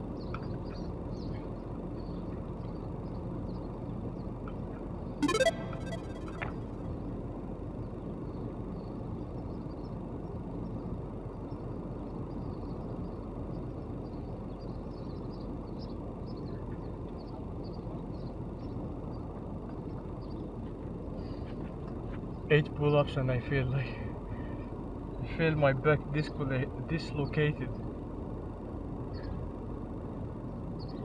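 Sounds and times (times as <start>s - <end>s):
faint high chirps: 5.2s - 6.8s
low outdoor background rumble: 24.1s - 31.0s.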